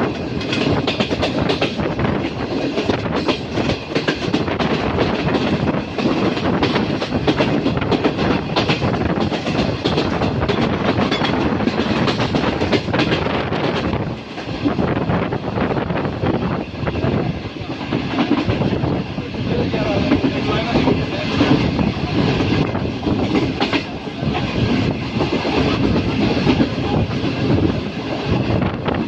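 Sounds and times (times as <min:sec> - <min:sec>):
train wheels rumbling on rails: 0:00.0 - 0:29.0
track clicks clattering: 0:00.1 - 0:14.6.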